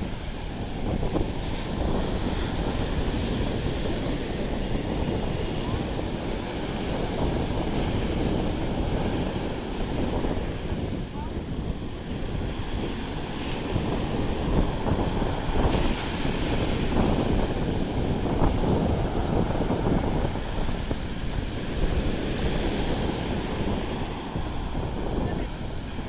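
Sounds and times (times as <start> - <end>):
sea surf washing on beach: 0.0 - 26.0
wind gusting on microphone: 0.0 - 26.0.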